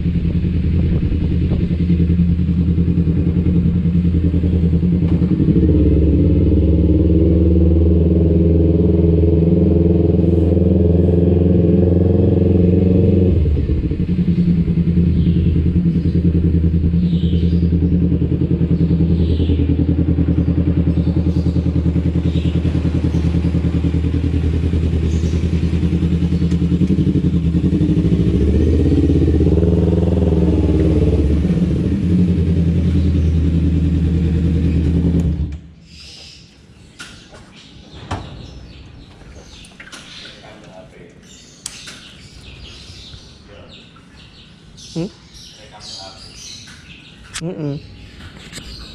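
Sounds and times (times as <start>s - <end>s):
motorcycle engine running: 0.0s - 35.8s.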